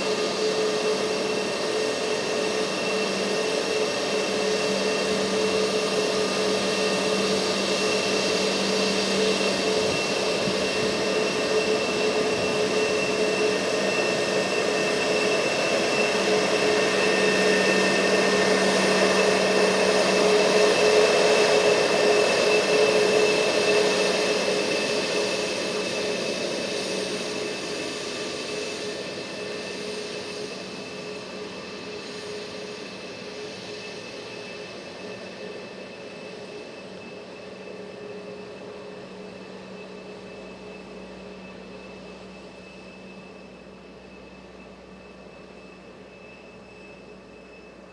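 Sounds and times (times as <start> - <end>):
jet engine rumble with whine: 0.0 - 47.9.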